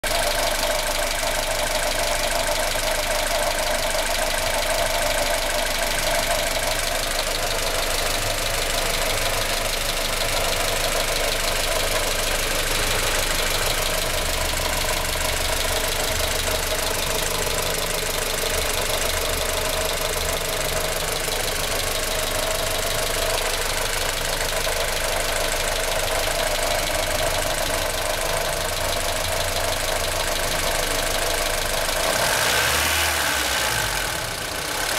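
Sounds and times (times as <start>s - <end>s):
car engine running: 0.0s - 34.9s
engine rattling and clunking: 0.0s - 34.9s.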